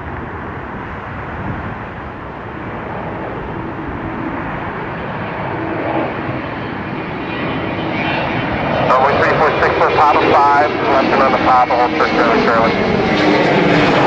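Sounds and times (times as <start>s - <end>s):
jet airliner engine rumble: 0.0s - 14.0s.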